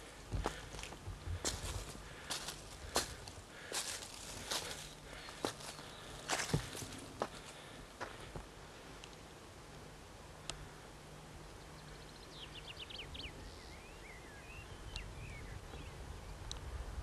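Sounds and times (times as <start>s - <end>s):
small bird singing: 4.5s - 6.8s, 11.5s - 16.6s.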